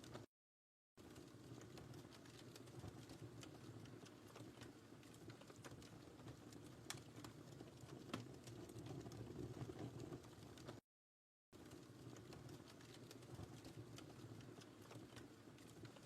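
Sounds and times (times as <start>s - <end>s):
wood fire crackling: 1.0s - 10.8s, 11.6s - 16.0s.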